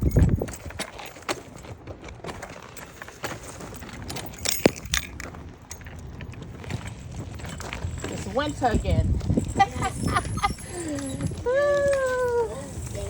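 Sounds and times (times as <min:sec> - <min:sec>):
wind buffeting microphone: 0:00.0 - 0:01.0, 0:03.8 - 0:13.0
shopping cart rattling on pavement: 0:00.0 - 0:13.0.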